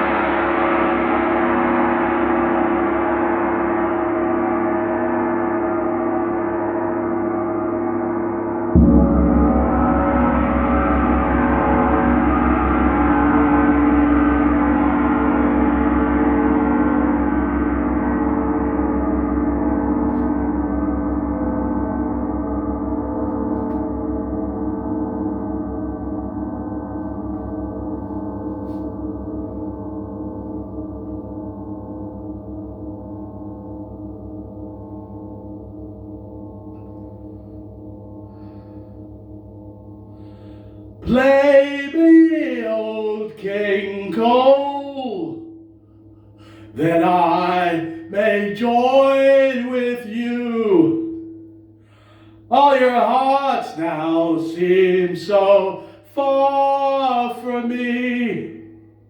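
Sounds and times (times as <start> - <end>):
deep low metal hit: 7.9 - 48.8
metal percussion ringing: 8.4 - 31.1.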